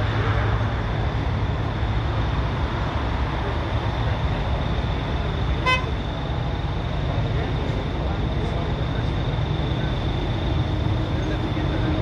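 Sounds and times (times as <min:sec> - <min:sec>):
heavy vehicle engines rumbling: 0:00.0 - 0:12.0
short horn toot: 0:05.6 - 0:06.0.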